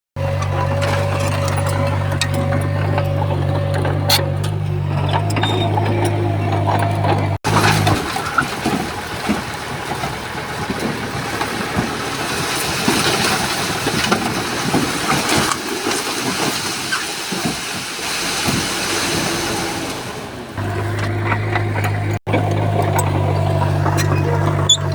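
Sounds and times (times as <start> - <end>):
earthmoving rumble: 0.2 - 15.2, 18.7 - 24.9
metal clanks and clatters: 0.2 - 19.5.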